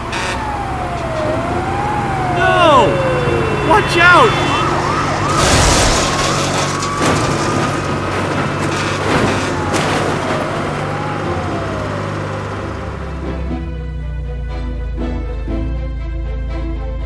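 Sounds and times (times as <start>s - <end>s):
low engine hum: 0.0s - 3.7s
truck crashing: 0.0s - 13.0s
siren wailing: 0.0s - 13.4s.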